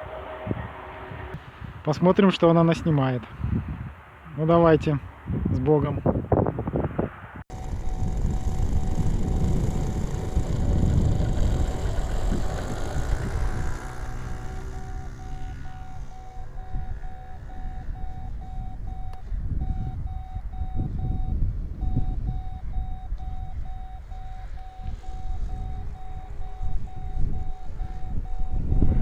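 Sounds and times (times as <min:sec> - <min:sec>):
strong wind buffeting microphone: 0:00.0 - 0:29.0
model plane motor whining: 0:07.5 - 0:18.8
steady beeping tone: 0:07.5 - 0:29.0.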